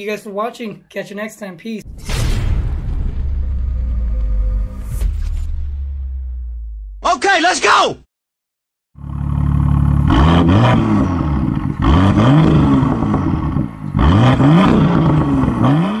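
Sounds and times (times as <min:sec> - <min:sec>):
car engine idling and revving: 0:09.0 - 0:16.0.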